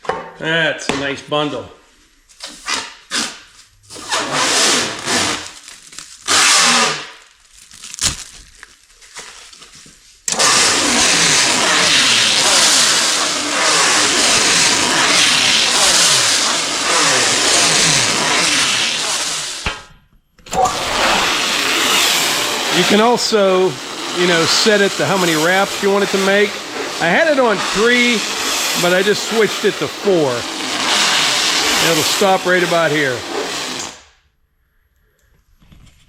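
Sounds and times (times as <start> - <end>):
electric firewood bundler running: 4.0 - 5.7, 10.3 - 19.7, 20.5 - 34.1.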